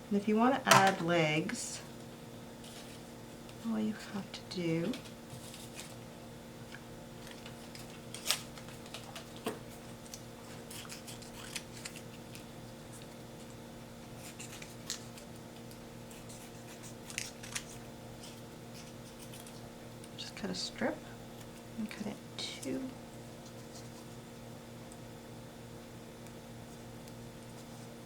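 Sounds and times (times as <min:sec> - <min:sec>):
faint steady hum: 0:00.0 - 0:28.0
scissors snipping paper: 0:10.1 - 0:13.1, 0:14.2 - 0:19.6.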